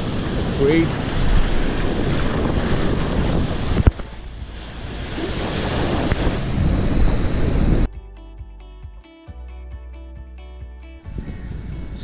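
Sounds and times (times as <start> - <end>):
rough surf washing onto beach: 0.0 - 7.9
wind buffeting microphone: 0.0 - 7.9, 11.1 - 12.0.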